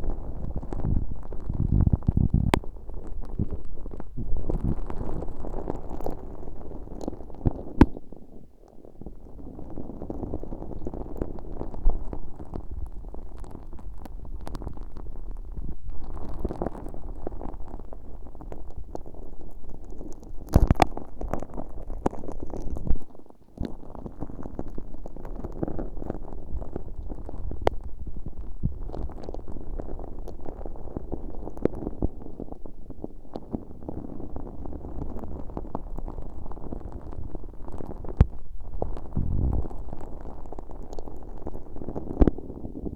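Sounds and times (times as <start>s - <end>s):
slime squelching on microphone: 33.3s - 42.9s.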